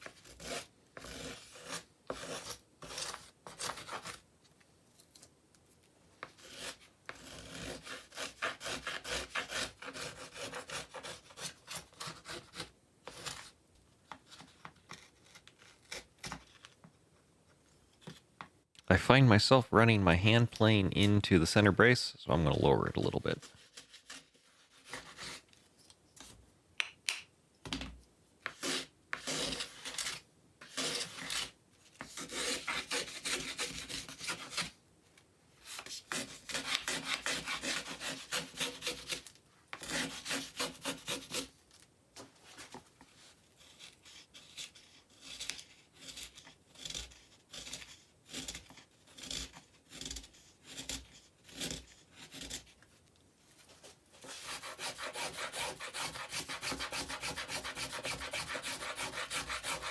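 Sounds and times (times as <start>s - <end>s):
hand plane shaving wood: 0.0s - 4.2s, 6.2s - 13.5s, 28.5s - 34.7s, 36.1s - 41.5s, 43.7s - 52.6s, 54.2s - 59.9s.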